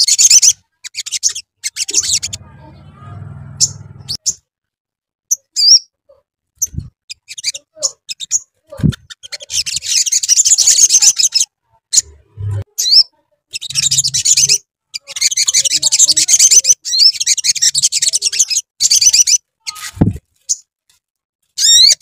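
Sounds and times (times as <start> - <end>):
bird high chattering song: 0.0 - 4.4, 6.6 - 20.6.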